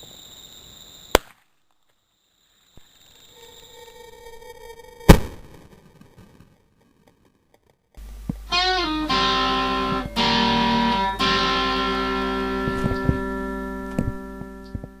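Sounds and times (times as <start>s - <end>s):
distorted electric guitar chords: 8.0s - 15.0s.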